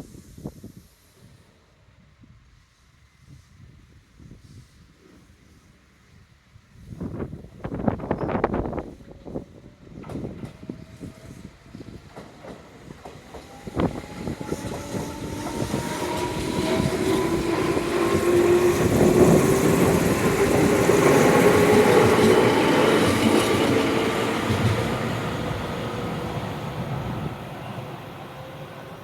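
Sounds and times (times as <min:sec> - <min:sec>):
train running noise: 0:06.7 - 0:29.0
train wheels clicking over rail joints: 0:12.0 - 0:25.6
train motor whine: 0:13.2 - 0:29.0.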